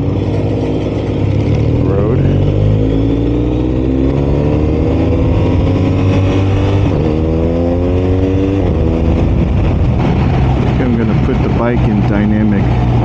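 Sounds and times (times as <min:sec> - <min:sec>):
motorcycle engine accelerating: 0:00.0 - 0:13.0
wind and road noise: 0:00.0 - 0:13.0.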